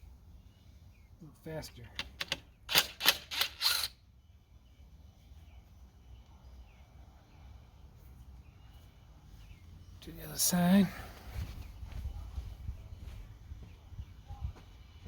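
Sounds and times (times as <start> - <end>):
ratchet wrench clicking: 2.2 - 3.9
faint bird chirps: 4.2 - 10.9.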